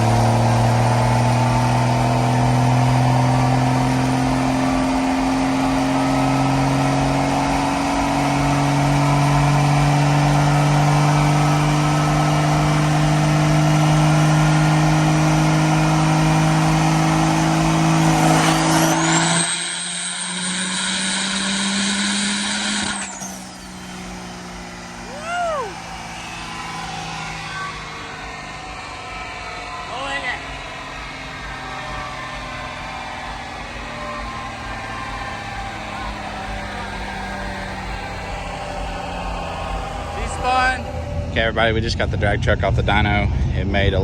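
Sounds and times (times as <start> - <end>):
truck engine running hard: 0.0 - 44.0
high whistle: 16.6 - 29.8.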